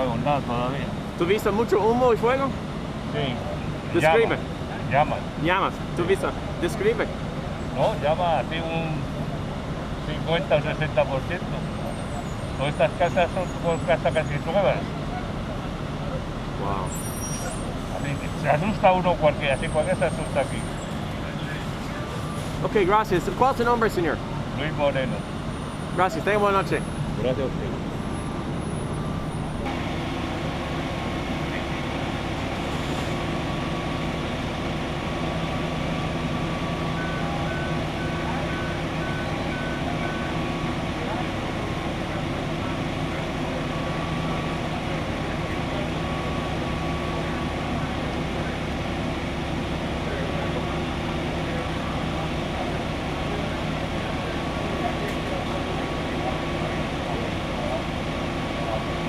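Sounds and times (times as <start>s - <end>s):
heavy vehicle engine idling: 0.0s - 59.0s
faint voices: 3.2s - 25.3s, 36.2s - 59.0s.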